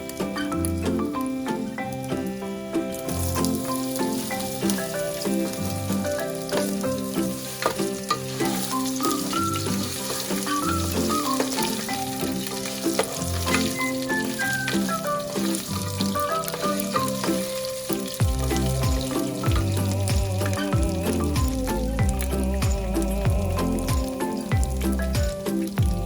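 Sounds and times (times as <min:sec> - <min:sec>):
background music with bass: 0:00.0 - 0:26.0
food sizzling in a pan: 0:00.1 - 0:26.0
spatula scraping a pan: 0:03.0 - 0:22.4.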